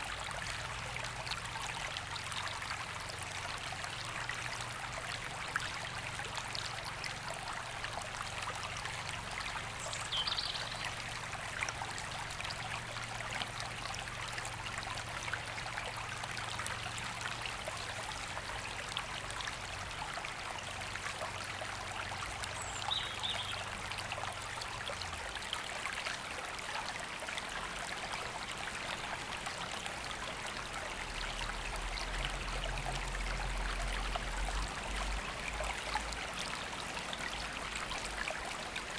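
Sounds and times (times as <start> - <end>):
river flowing over stones: 0.0 - 38.9.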